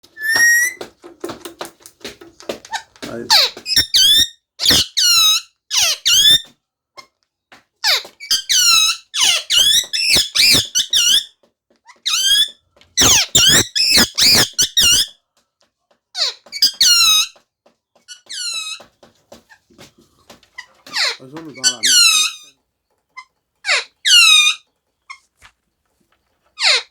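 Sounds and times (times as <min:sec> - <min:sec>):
parrot squawking: 0:03.3 - 0:06.4, 0:07.9 - 0:11.2, 0:12.0 - 0:15.1, 0:16.2 - 0:17.3, 0:20.6 - 0:22.5, 0:23.6 - 0:24.6, 0:26.6 - 0:26.9.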